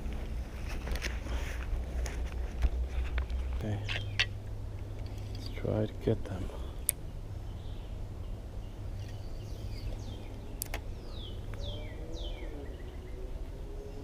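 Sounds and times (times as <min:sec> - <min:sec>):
bird calling: 0:03.4 - 0:04.4, 0:08.7 - 0:14.0.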